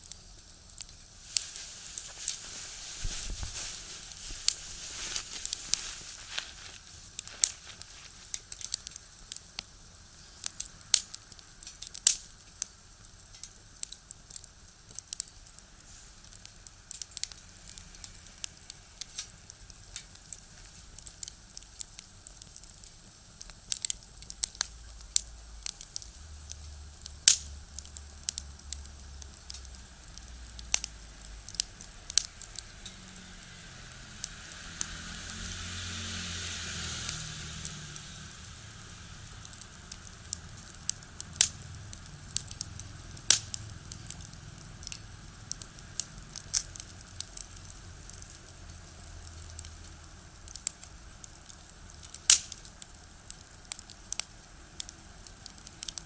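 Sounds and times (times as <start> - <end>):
firewood crackling and popping: 0.0 - 56.0
vehicles rumbling on road: 33.0 - 39.8.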